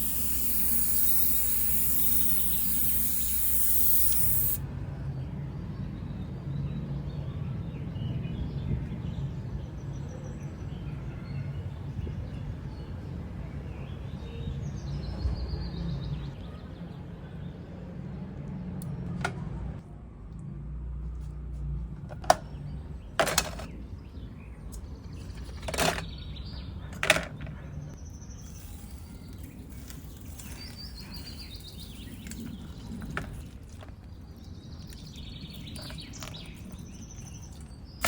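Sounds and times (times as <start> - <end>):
spray hissing: 0.0 - 4.6.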